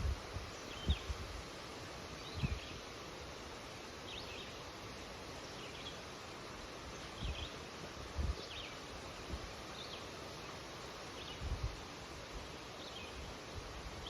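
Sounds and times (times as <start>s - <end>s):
wind rustling through leaves: 0.0s - 14.0s
songbird chirping: 0.4s - 1.2s, 2.1s - 3.1s, 4.0s - 11.6s, 12.4s - 14.0s.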